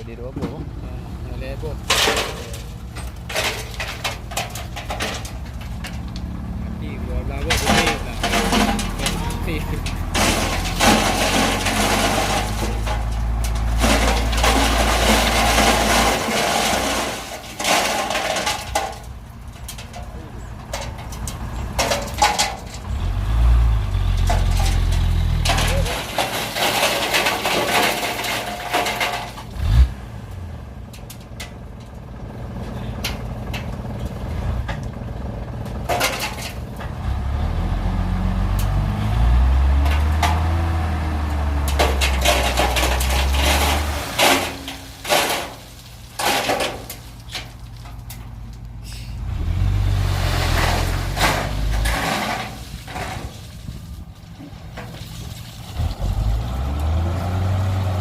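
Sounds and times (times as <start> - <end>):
excavator diesel engine running: 0.2 - 29.1, 30.0 - 46.1
metal clanks: 1.7 - 6.3, 7.1 - 23.0, 24.0 - 29.8, 35.6 - 37.0, 39.8 - 49.2, 50.4 - 53.8.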